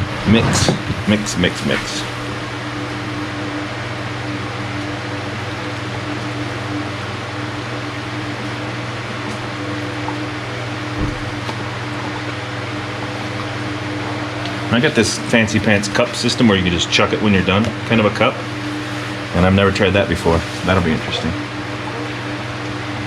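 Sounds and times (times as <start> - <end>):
machine hum with airy hiss: 0.0 - 23.0
faint low thump: 11.0 - 11.3.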